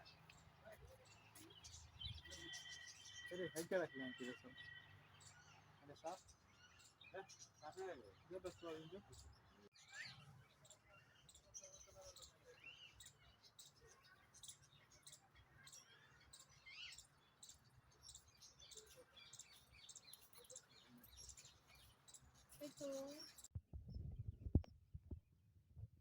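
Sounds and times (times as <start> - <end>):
faint bird chirping: 0.0 - 24.6.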